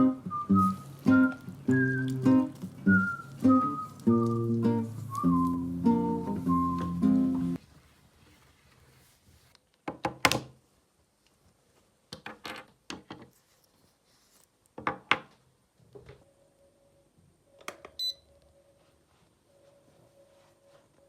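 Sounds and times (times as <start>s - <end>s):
brief high beep: 18.0s - 18.3s.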